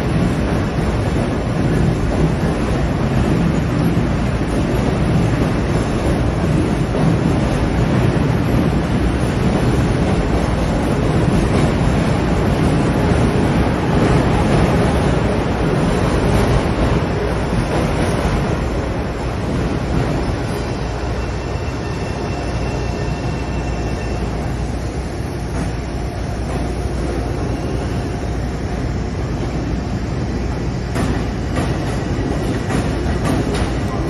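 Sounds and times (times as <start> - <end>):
train rumbling: 0.0 - 34.0
high wheel squeal: 20.8 - 24.6.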